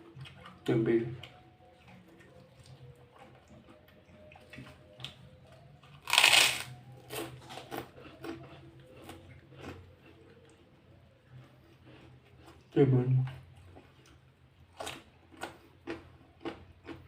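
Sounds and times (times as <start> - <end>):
wet chewing: 0.0 - 17.0
crunchy bite: 6.0 - 7.9.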